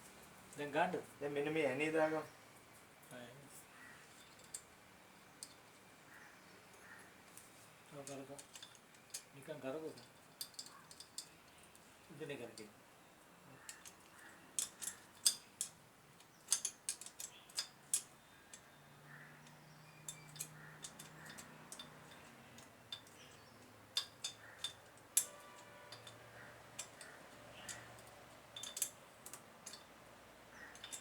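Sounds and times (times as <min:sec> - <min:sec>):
metallic clicks and taps of tools: 0:04.2 - 0:04.7, 0:08.0 - 0:09.3, 0:10.0 - 0:11.9, 0:13.6 - 0:18.7, 0:19.4 - 0:31.0
nuts turned by hand: 0:07.9 - 0:12.7, 0:13.5 - 0:31.0.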